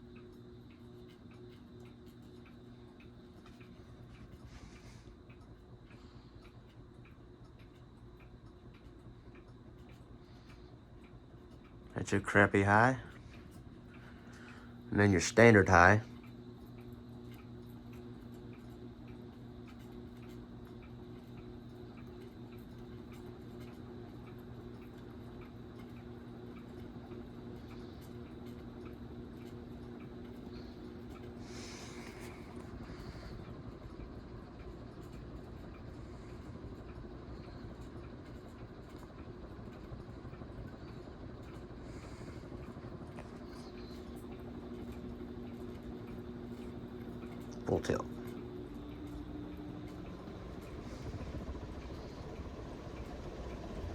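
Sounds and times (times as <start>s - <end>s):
ceiling fan humming: 0.0s - 53.9s
light regular ticking: 0.0s - 53.9s.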